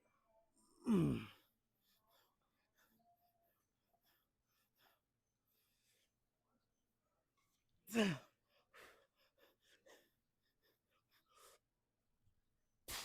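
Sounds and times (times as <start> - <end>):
man panting: 0.8 - 6.4, 7.9 - 11.8.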